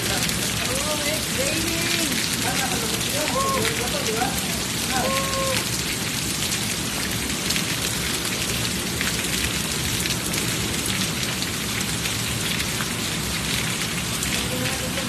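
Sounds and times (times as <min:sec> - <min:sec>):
heavy rain falling: 0:00.0 - 0:15.0
raindrops hitting nearby: 0:00.0 - 0:15.0.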